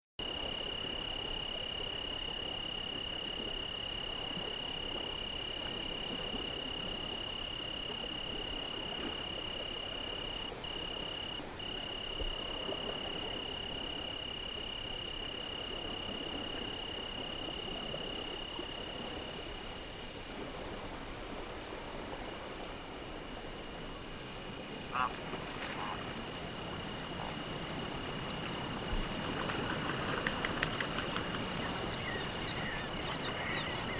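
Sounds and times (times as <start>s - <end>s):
continuous high insect trill: 0.2s - 33.9s
crickets chirping: 0.2s - 33.9s.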